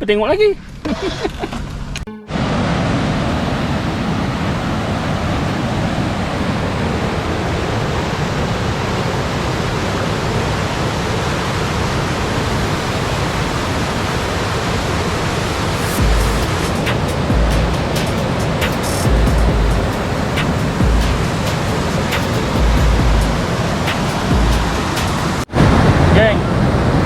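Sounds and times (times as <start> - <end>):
fast-flowing stream water: 23.4 - 25.6.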